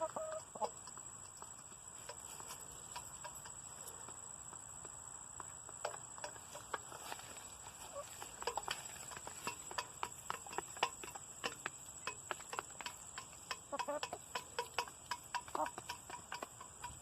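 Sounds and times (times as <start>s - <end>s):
soft hen calls: 0.0s - 0.9s, 7.8s - 11.2s, 13.5s - 17.0s
beaks tapping on bowls: 0.0s - 17.0s.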